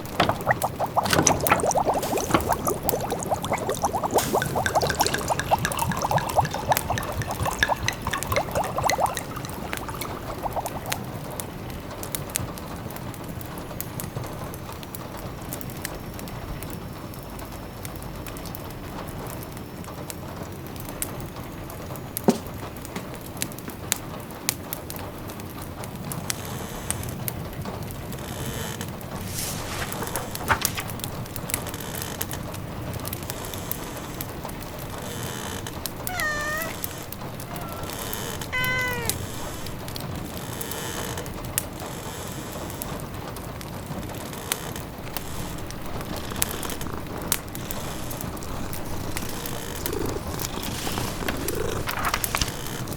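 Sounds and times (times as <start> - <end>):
pot bubbling: 0.0 - 11.2, 29.2 - 31.5, 36.0 - 40.1, 44.9 - 52.9
rain patter: 0.0 - 11.5, 28.9 - 33.4, 34.1 - 41.6, 43.8 - 52.9.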